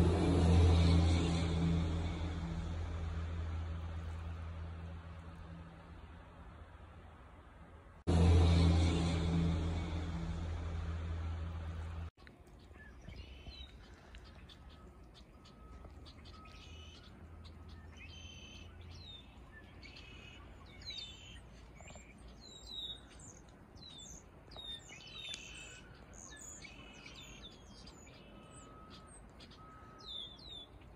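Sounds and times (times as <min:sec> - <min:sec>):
faint low rumble: 0:00.0 - 0:30.6
small birds chirping: 0:12.2 - 0:30.9.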